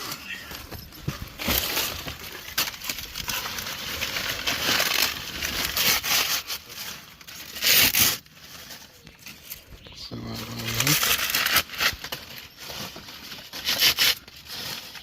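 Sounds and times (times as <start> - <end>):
dry leaves rustling and crunching: 0.0 - 15.0.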